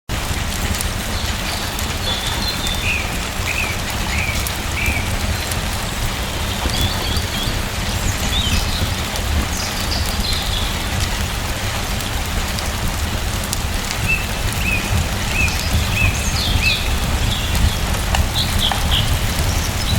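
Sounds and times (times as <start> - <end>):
steady rain: 0.1 - 19.9.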